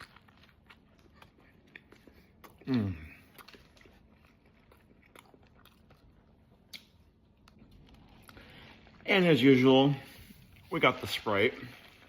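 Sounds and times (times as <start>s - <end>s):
chewing with mouth clicks: 0.0s - 9.1s.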